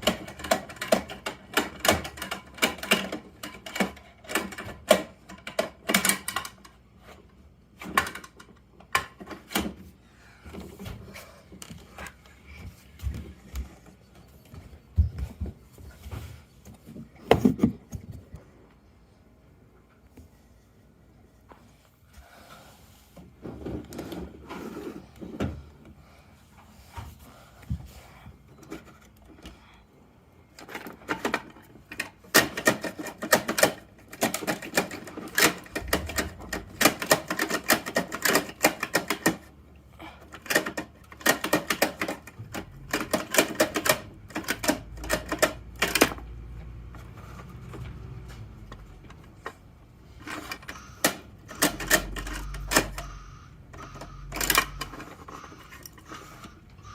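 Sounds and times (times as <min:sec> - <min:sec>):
toy truck plastic clicks and rattles: 0:00.0 - 0:09.8, 0:30.5 - 0:39.6, 0:40.2 - 0:56.9.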